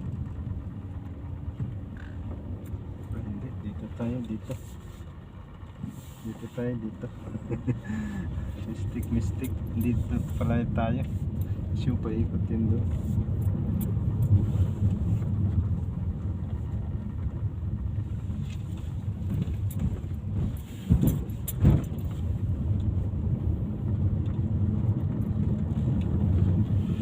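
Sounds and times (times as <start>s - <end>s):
vehicle rumbling: 0.0s - 27.0s.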